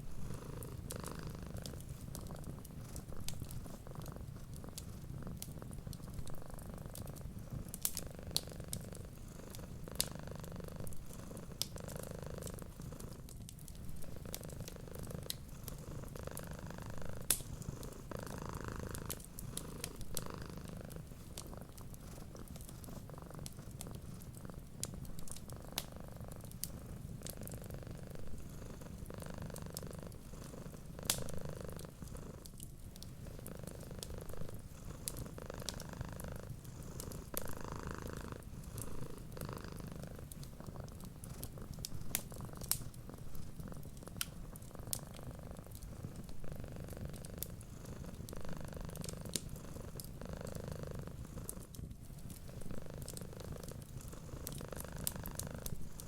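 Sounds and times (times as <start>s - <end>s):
cat purring: 0.0s - 56.0s
wood fire crackling: 0.0s - 56.0s.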